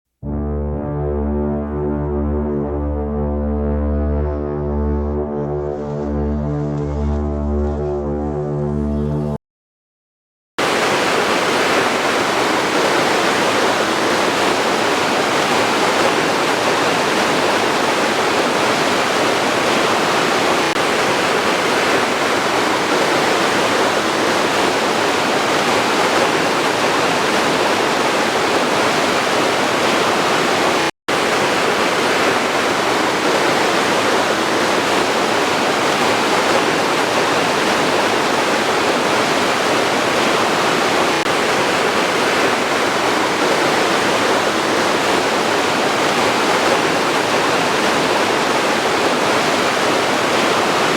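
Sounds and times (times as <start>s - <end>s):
waterfall rushing: 10.6s - 50.9s.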